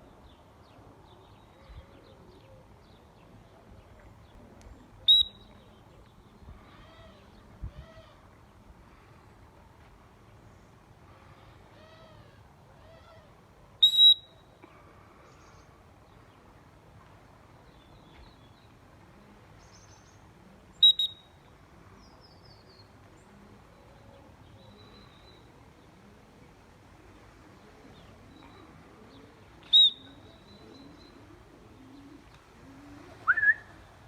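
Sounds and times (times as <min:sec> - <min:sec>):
faint birdsong: 0:00.0 - 0:34.0
light background noise: 0:00.0 - 0:34.0
loud high-pitched double whistles: 0:05.1 - 0:05.4, 0:13.8 - 0:14.3, 0:20.8 - 0:21.2, 0:29.7 - 0:30.0.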